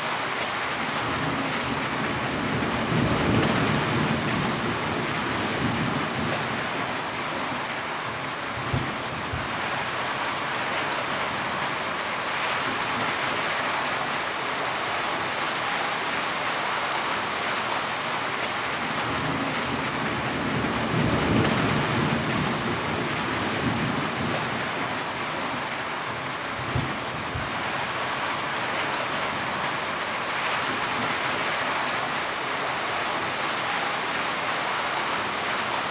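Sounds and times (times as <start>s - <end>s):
steady rain falling: 0.0s - 35.9s.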